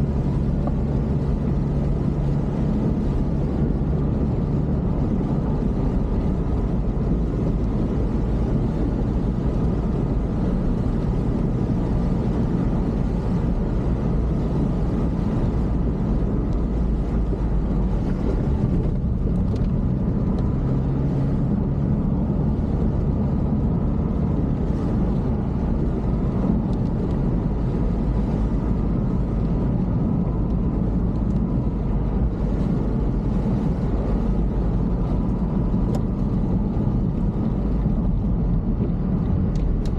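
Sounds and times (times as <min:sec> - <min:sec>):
road rumble: 0:00.0 - 0:39.9
vehicle engine running: 0:00.0 - 0:39.9.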